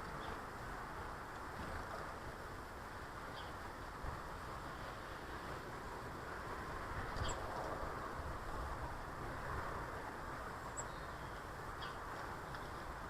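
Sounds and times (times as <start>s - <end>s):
outdoor background noise: 0.0s - 13.0s
faint high bird chirp: 7.2s - 7.4s, 10.7s - 12.0s.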